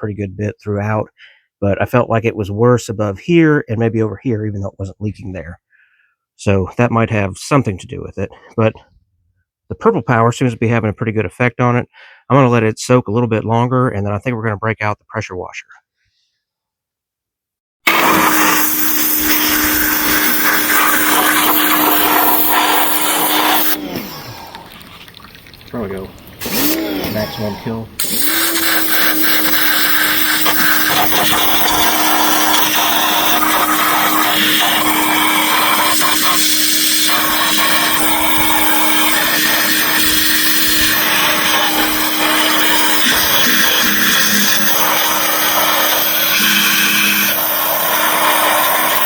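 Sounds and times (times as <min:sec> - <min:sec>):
pressure washer motor hum: 0:17.9 - 0:49.0.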